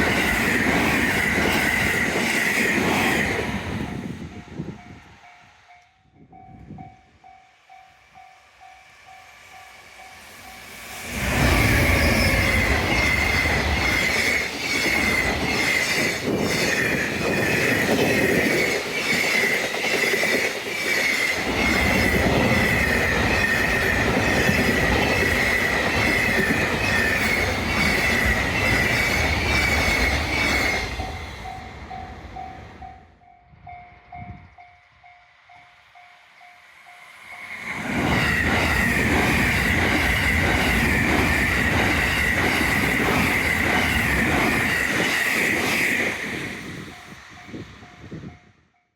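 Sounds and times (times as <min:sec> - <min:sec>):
train passing on rails: 0:00.0 - 0:48.9.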